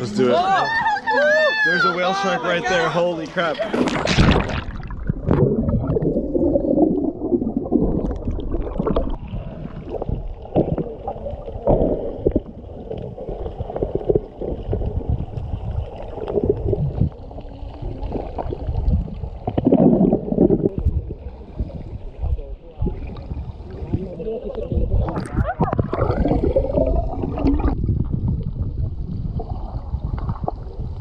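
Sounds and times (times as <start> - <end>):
muffled underwater sloshing: 3.4 - 31.0
splashes and knocks: 3.7 - 6.0.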